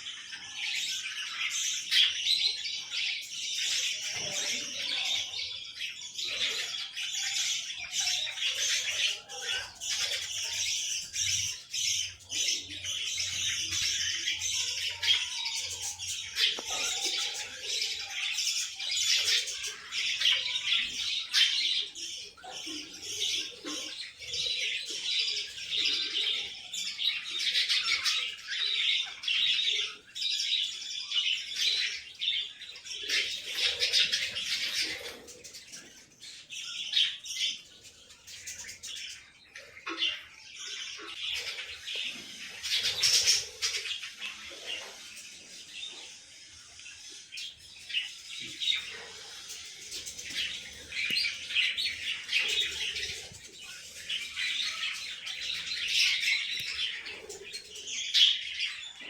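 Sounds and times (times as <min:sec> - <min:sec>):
lovebirds chattering: 0:00.0 - 0:59.0.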